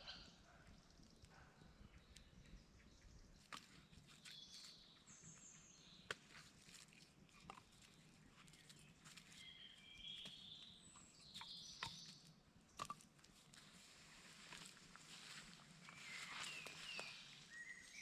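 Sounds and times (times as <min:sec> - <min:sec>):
faint high bird calls: 0:15.8 - 0:18.0.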